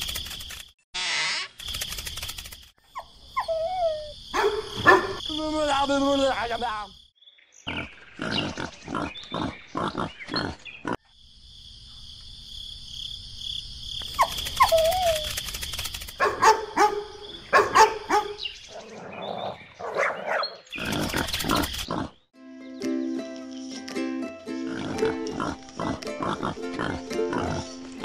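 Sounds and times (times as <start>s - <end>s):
pigs grunting: 7.7s - 11.0s, 20.7s - 22.2s, 24.7s - 27.8s.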